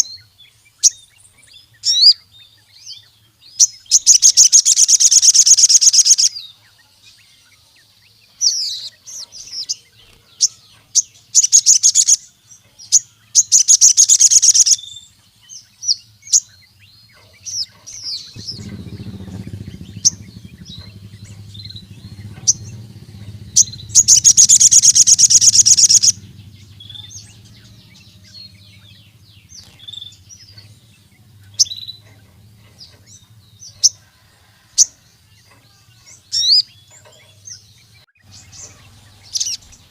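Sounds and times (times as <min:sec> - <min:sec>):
bird sharp chirps: 0:00.0 - 0:34.1, 0:34.8 - 0:39.9
bird buzzy trills: 0:00.0 - 0:39.9
low hum: 0:17.6 - 0:34.1.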